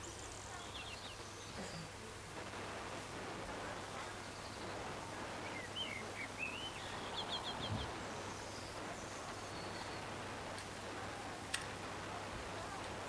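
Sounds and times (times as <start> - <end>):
bird singing: 0.0 - 1.9, 3.9 - 4.8, 5.4 - 10.1
outdoor background noise: 0.0 - 13.0.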